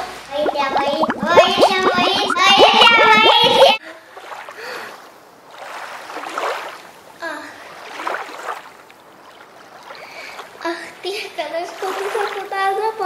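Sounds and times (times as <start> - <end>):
water lapping and splashing: 0.0 - 13.0.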